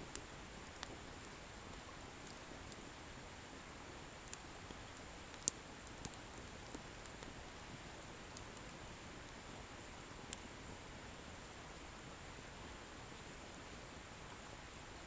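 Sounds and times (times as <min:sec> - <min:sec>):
firewood crackles and pops: 0:00.0 - 0:09.4, 0:10.0 - 0:10.6.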